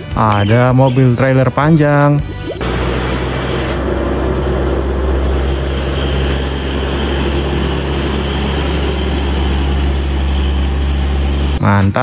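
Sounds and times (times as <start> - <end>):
diesel truck engine droning: 2.3 - 12.0
tyres hissing on wet road: 2.6 - 11.6.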